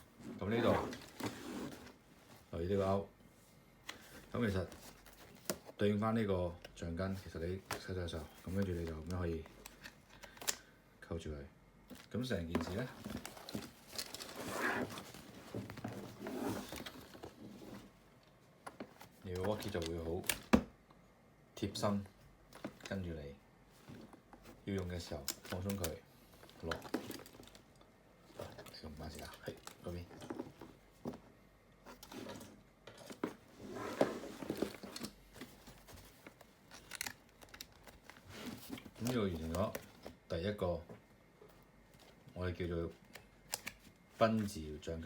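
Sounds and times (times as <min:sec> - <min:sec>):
rustling: 0:11.9 - 0:18.1, 0:31.9 - 0:40.2.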